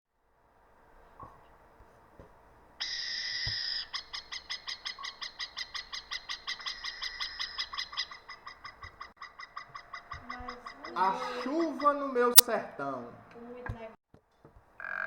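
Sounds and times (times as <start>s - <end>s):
bird calling in rapid short notes: 2.8s - 11.8s
bird screeching: 2.8s - 12.4s.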